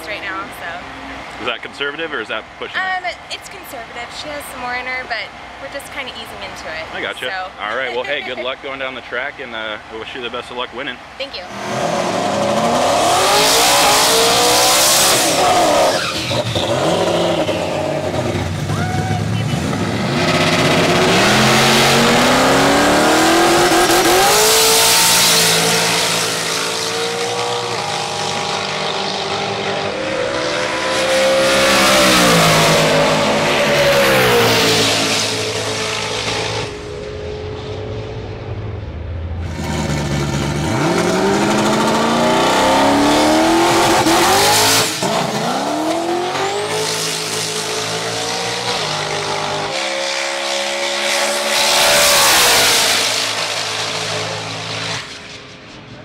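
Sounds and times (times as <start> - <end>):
drag car engine revving: 11.5 - 56.0.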